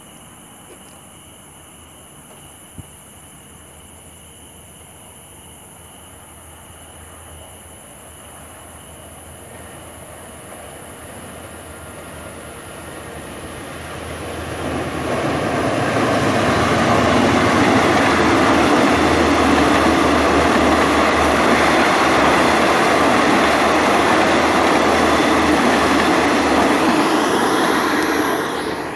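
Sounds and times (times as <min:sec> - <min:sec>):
train wheel and engine rush: 0:06.3 - 0:28.9.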